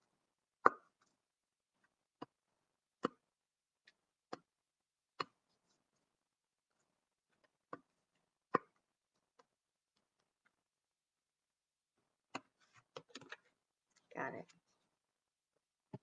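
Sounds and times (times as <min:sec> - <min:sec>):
cards tapping and clicking: 0:12.3 - 0:13.5.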